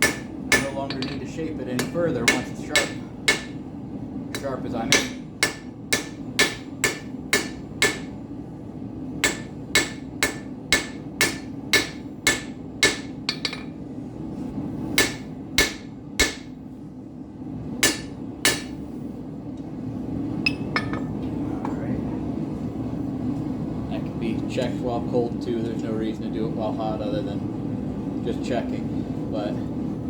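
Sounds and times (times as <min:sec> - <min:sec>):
hammer blows on an anvil: 0:00.0 - 0:03.6, 0:04.3 - 0:08.2, 0:09.2 - 0:13.8, 0:15.0 - 0:16.5, 0:17.8 - 0:18.8
gas forge burner drone: 0:00.0 - 0:30.0.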